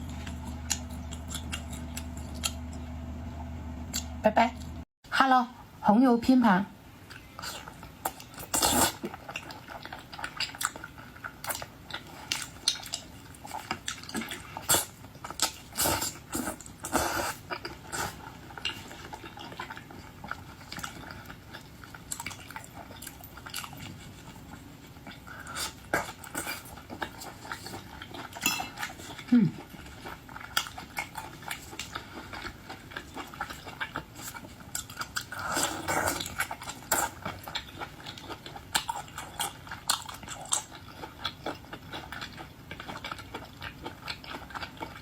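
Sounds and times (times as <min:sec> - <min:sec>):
person chewing crunchy food: 0:00.0 - 0:03.1, 0:07.0 - 0:45.0.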